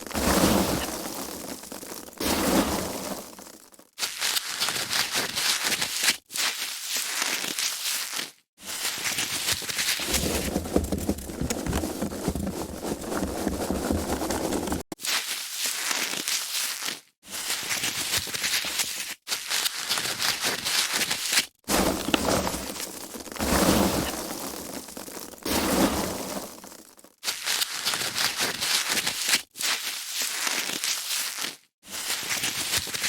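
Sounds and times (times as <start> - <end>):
foam packaging rustling: 0.0 - 2.1, 4.4 - 17.0.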